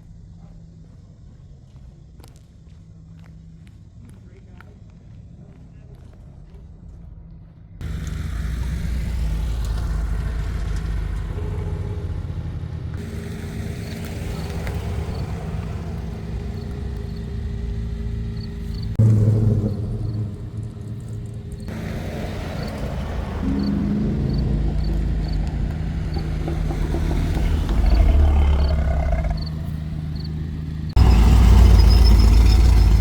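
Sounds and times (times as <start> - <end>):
car engine rumbling: 7.8 - 33.0.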